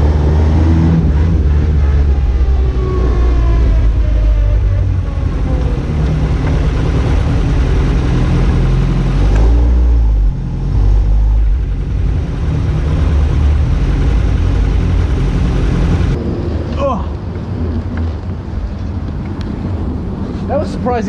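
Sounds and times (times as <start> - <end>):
race car engine accelerating: 0.0 - 16.2.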